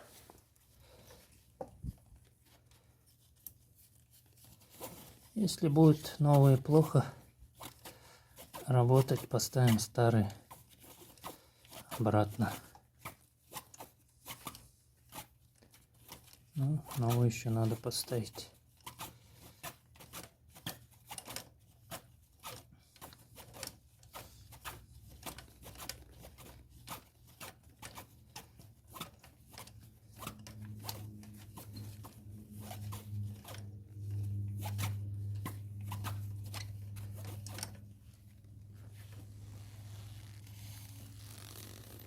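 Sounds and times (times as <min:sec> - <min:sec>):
low steady hum: 0:29.8 - 0:42.0.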